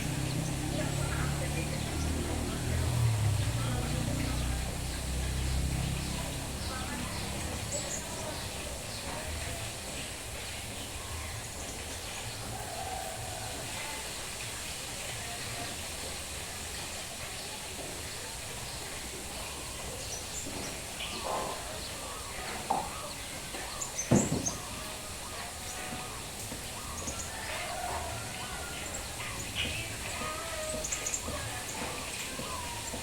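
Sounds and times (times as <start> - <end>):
birds chirping faintly: 0.0 - 33.0
steady rain: 0.0 - 33.0.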